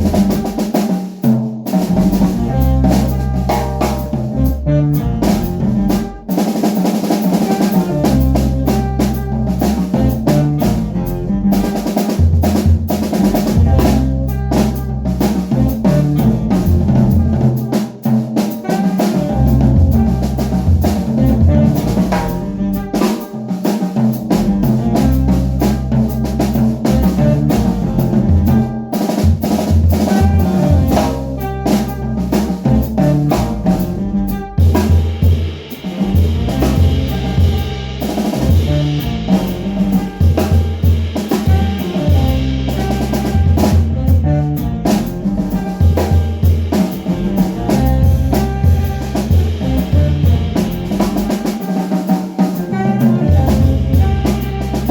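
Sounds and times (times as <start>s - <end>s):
snare drum hits and rimshots: 0.0s - 4.3s, 5.5s - 10.9s, 34.6s - 44.3s, 44.9s - 54.9s
jazz band playing: 0.0s - 54.9s.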